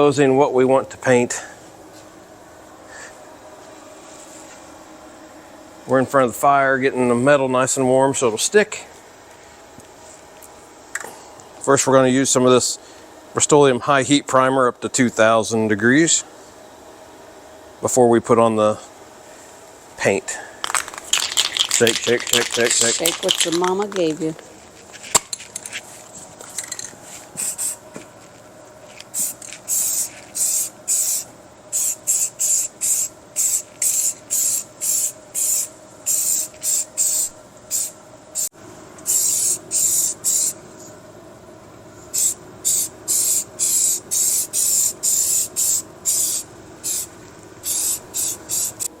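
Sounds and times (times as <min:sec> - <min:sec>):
aerosol can spraying: 0:27.4 - 0:27.8, 0:29.1 - 0:40.6, 0:42.2 - 0:48.9.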